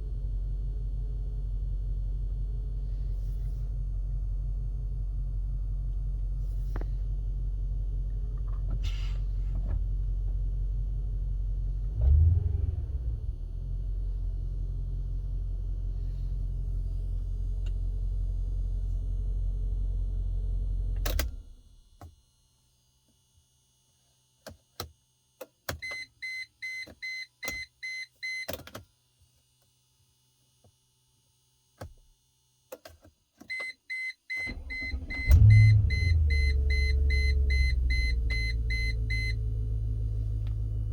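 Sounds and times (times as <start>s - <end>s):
car engine idling: 0.0s - 21.4s, 34.5s - 40.9s
engine cranking and revving: 11.8s - 14.6s, 34.5s - 40.9s.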